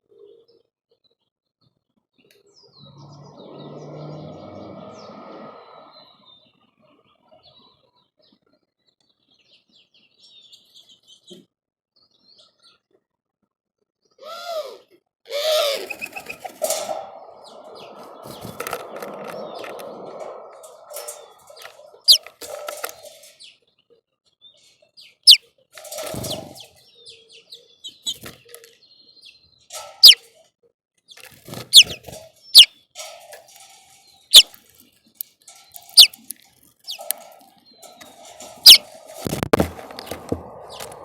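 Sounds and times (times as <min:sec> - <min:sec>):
small birds chirping: 0:15.4 - 0:30.4, 0:31.1 - 0:41.0
thump: 0:38.7 - 0:41.0.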